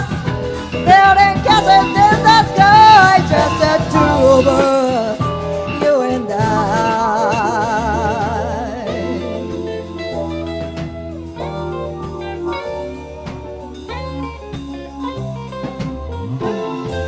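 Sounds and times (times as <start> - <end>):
drum kit: 0.0 - 17.0
guitar: 0.0 - 17.0
low bass line: 0.0 - 17.0.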